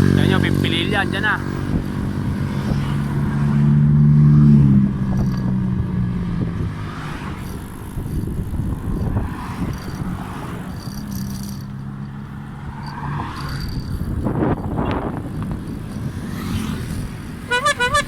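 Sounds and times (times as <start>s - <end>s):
vehicle engine hum passing by: 0.0s - 18.0s.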